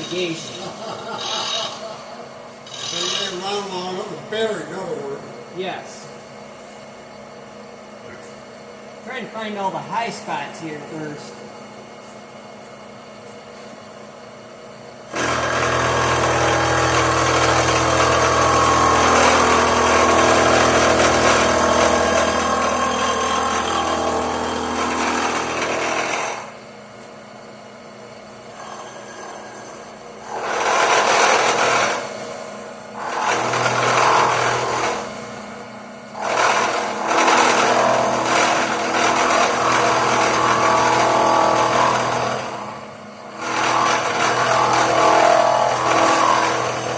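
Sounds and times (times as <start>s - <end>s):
power tool grinding metal: 0.0s - 4.9s, 15.1s - 26.6s, 28.5s - 32.2s, 33.0s - 35.2s, 36.2s - 46.9s.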